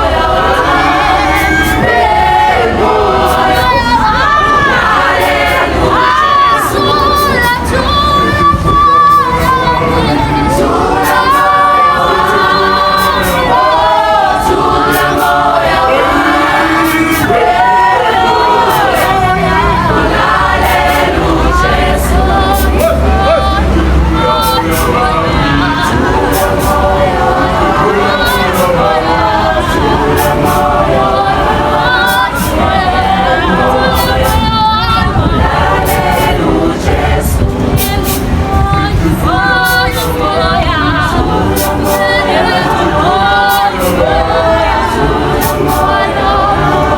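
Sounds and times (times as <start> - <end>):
choir singing in harmony: 0.0 - 46.9
sharp percussive hits: 12.9 - 21.6.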